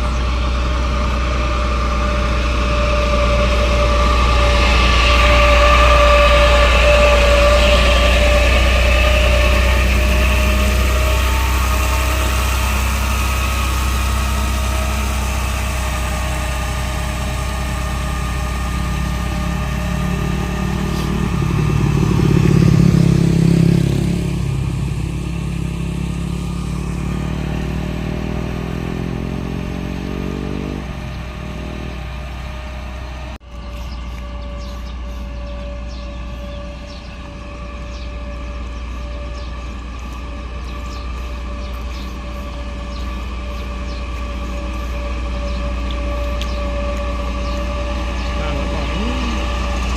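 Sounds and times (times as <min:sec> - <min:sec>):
truck diesel engine running: 0:00.0 - 0:49.9.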